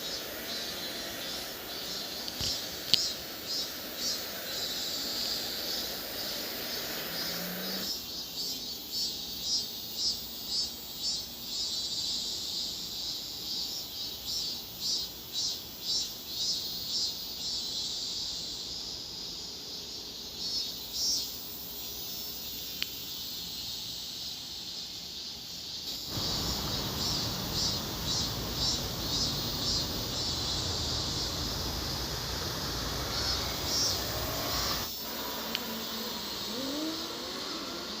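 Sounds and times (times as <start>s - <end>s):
cicadas singing in pulses: 0.0s - 38.0s
low background noise: 0.0s - 38.0s.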